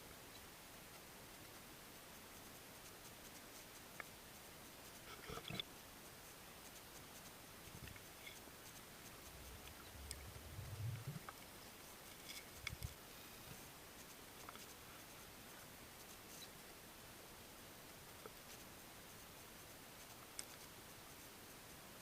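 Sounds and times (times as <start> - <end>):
soft low thumps: 9.2 - 11.3
small clicks: 20.1 - 20.7.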